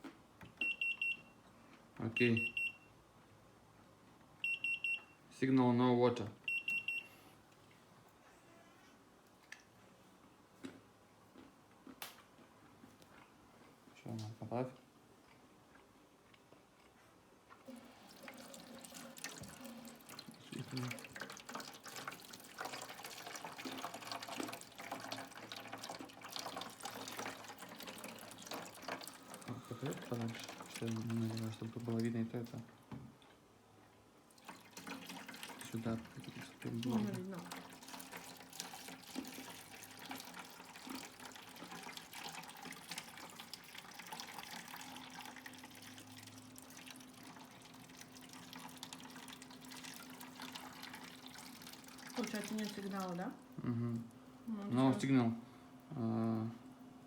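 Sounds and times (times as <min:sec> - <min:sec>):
faint steady hum: 0:00.0 - 0:57.0
water trickling and dripping: 0:17.7 - 0:32.6, 0:34.3 - 0:53.4.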